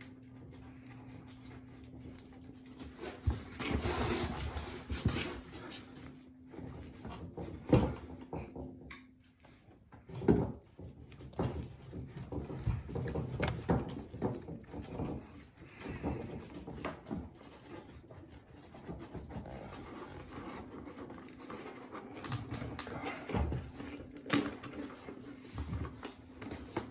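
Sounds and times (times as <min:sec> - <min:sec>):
cable scraping in plastic pipe: 0:10.8 - 0:26.9.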